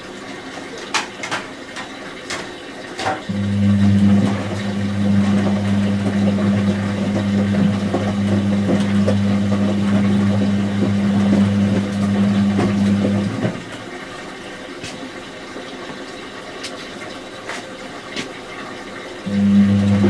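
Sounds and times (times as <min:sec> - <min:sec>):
washing machine humming: 0:00.0 - 0:20.0
water splashing: 0:02.4 - 0:15.7.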